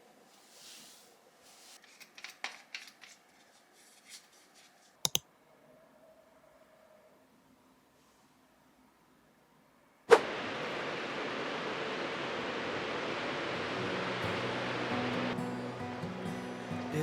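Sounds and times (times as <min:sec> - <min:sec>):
sharp clicks: 0:05.0 - 0:05.2.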